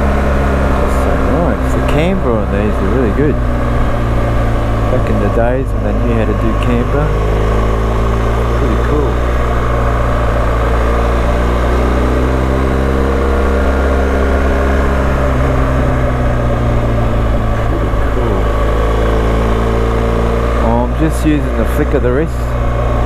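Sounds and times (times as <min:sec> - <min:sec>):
motorcycle engine cruising: 0:00.0 - 0:23.0
road noise: 0:00.0 - 0:23.0.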